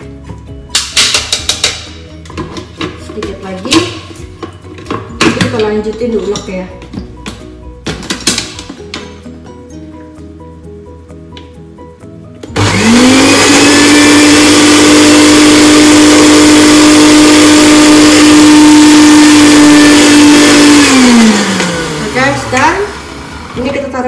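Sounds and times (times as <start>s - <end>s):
soft background music: 0.0s - 24.0s
blender motor whining: 12.5s - 23.6s.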